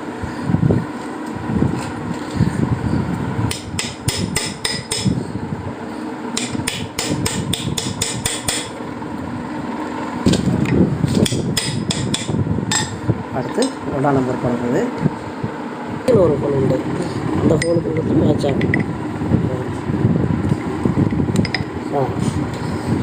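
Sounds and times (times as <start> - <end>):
hammer tapping on steel: 3.5 - 5.2, 6.4 - 8.8, 11.2 - 13.0.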